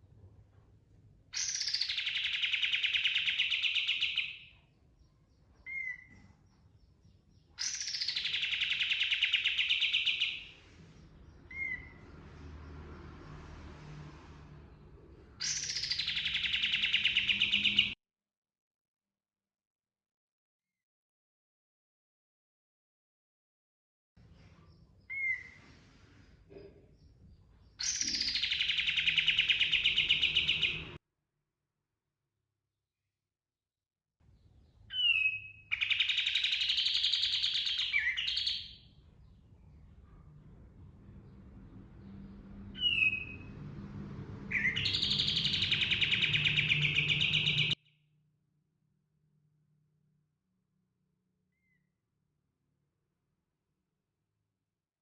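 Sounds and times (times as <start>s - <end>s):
bird rapid rolling trill: 44.5s - 47.8s.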